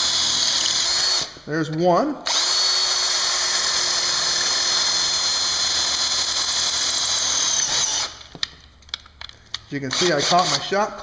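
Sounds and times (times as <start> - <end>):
electric drill whining: 0.0 - 1.4, 2.3 - 8.3.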